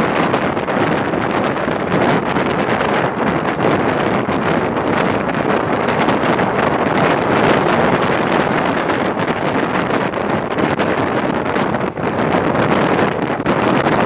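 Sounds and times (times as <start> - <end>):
train rumbling on track: 0.0 - 14.0
wind on microphone: 0.0 - 14.0.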